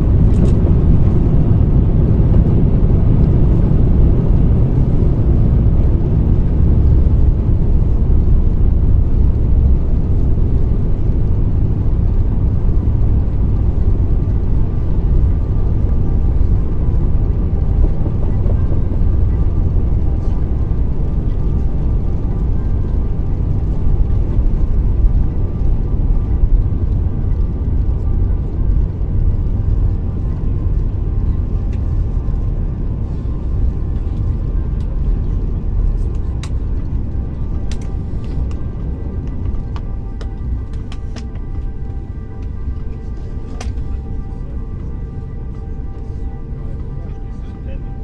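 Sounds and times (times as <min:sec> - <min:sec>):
airliner cabin rumble: 0:00.0 - 0:48.0.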